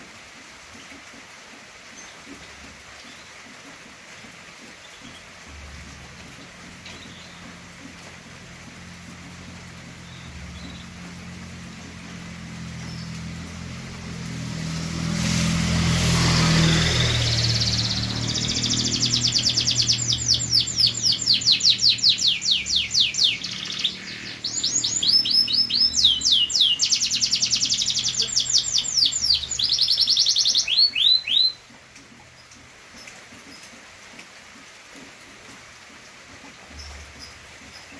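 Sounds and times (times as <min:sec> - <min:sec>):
canary singing trills: 0:06.0 - 0:31.7
rushing noise: 0:11.1 - 0:29.8.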